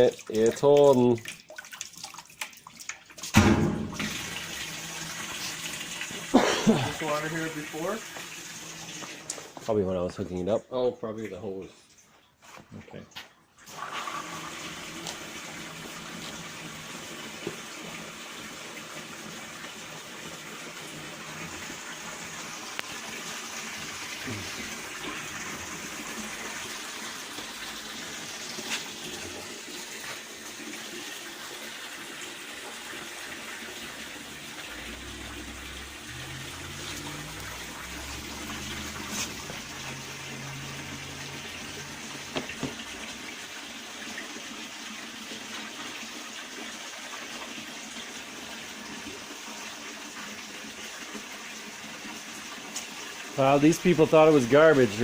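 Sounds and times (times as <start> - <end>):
water rushing into washing machine: 0.0 - 9.6, 13.6 - 55.0
low hum: 34.0 - 42.3.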